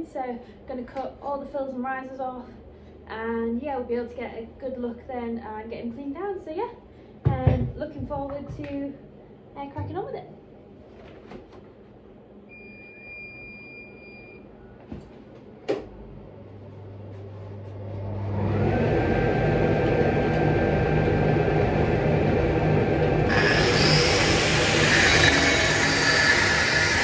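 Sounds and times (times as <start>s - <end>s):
electric cutting tool whining: 18.4s - 27.0s
hissing of tool cutting metal: 23.3s - 27.0s.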